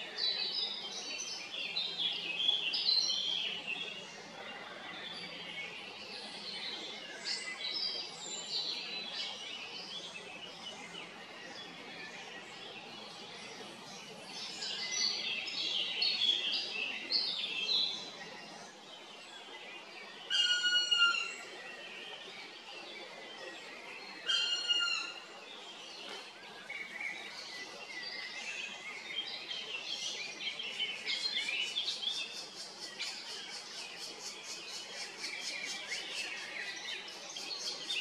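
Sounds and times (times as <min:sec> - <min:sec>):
birds chirping and twittering: 0:00.0 - 0:38.0.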